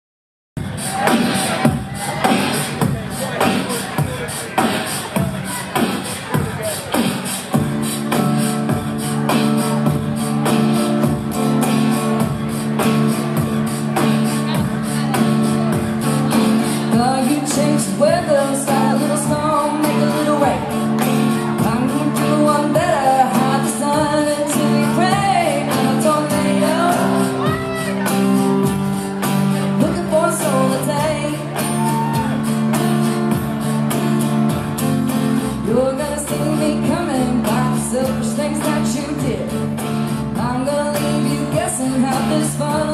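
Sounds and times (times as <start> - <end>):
steady drum beat: 0.6 - 19.8, 20.4 - 30.0, 30.8 - 34.9
live band music: 0.6 - 42.9
sustained guitar chords: 7.5 - 42.9.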